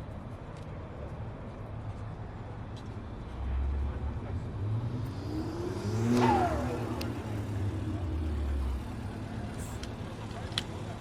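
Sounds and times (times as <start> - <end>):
low engine rumble: 0.0 - 11.0
car driving past: 3.4 - 10.2.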